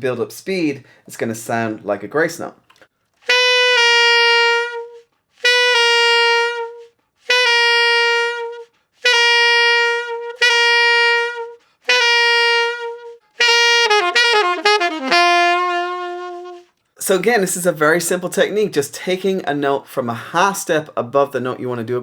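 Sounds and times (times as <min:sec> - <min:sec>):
alto saxophone notes: 0:03.2 - 0:16.8.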